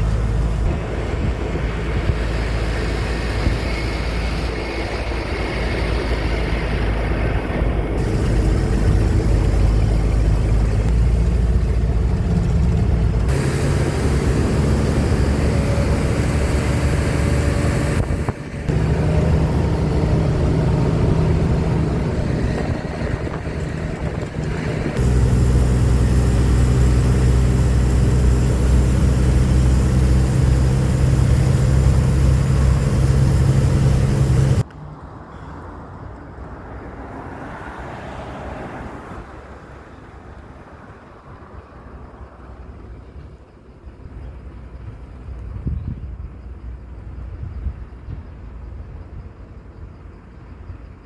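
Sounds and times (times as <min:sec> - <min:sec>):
heavy truck engine humming: 0:00.0 - 0:34.6
vehicle road noise: 0:00.0 - 0:48.1.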